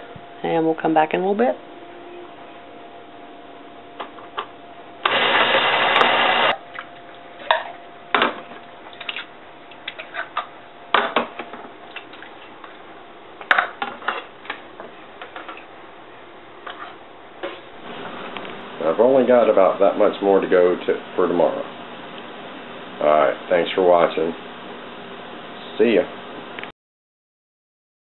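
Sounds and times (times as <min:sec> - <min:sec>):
small electric kitchen motor: 0:05.0 - 0:06.6.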